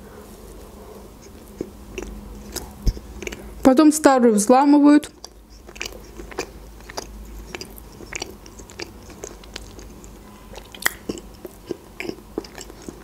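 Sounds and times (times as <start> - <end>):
person chewing soft cake: 0.4 - 3.6, 5.0 - 13.0
mouth clicks: 5.0 - 13.0.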